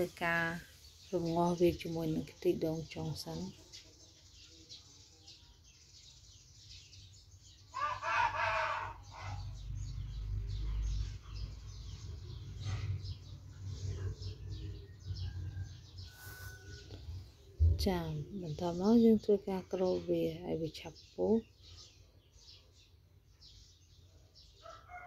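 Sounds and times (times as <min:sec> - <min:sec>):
loud bird call: 0:07.7 - 0:09.6
low rumbling noise: 0:17.0 - 0:18.4.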